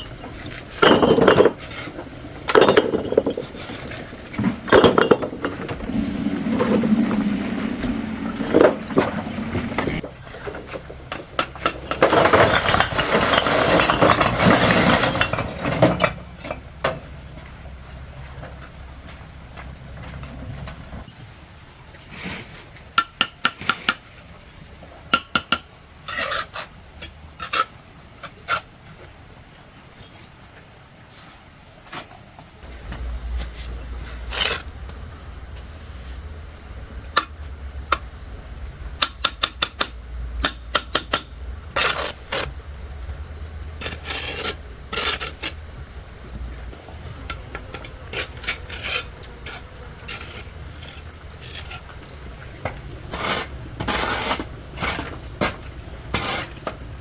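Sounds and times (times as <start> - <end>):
tools scraping and clinking: 0.0 - 17.0, 43.8 - 57.0.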